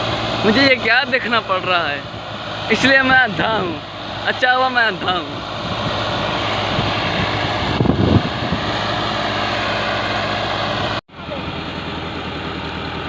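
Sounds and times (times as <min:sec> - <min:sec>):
tractor engine running: 0:00.0 - 0:13.0
low rumble: 0:02.0 - 0:11.8.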